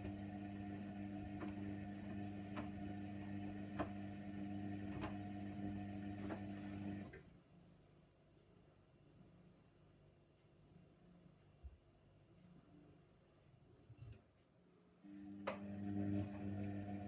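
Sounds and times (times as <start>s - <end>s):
washing machine humming: 0.0s - 7.2s, 15.1s - 17.0s.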